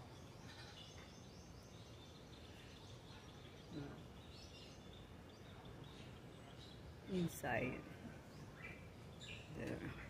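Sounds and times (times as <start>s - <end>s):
faint high bird chirps: 0.0s - 7.6s.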